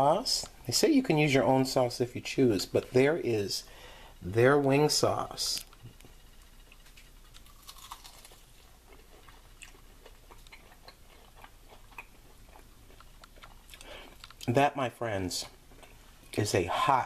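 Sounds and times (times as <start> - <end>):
wet chewing: 6.7 - 14.5.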